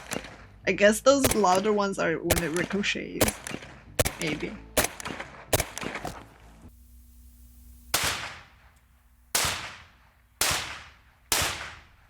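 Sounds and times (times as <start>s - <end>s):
bullets striking metal sheeting: 2.3s - 6.3s.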